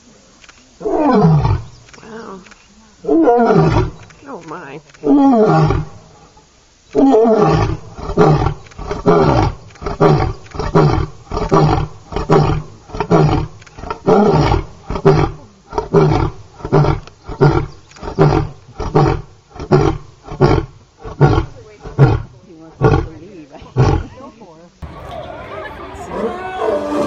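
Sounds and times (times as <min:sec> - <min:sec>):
lion roaring: 0:07.0 - 0:23.1, 0:26.0 - 0:27.0.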